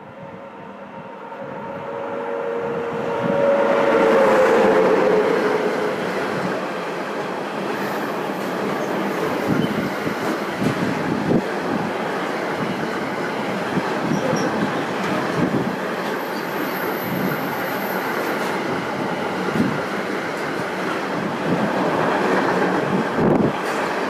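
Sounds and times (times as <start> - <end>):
high-pitched wheel squeal: 1.0 - 5.3
train wheels rolling on rails: 3.1 - 24.0.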